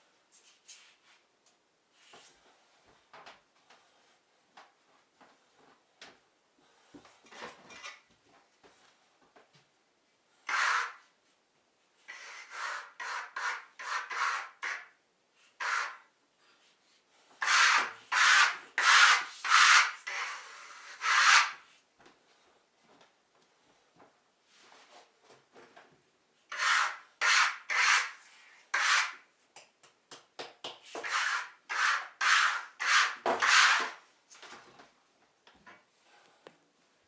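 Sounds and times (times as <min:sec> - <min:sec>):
scraping strokes across a surface: 0:26.5 - 0:29.2, 0:31.0 - 0:34.0.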